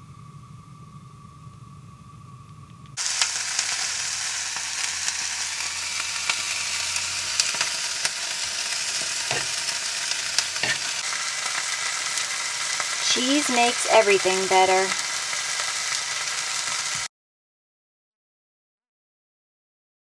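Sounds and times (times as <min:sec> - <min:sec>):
faint hum: 0:00.0 - 0:17.0
food sizzling in a pan: 0:03.0 - 0:17.1.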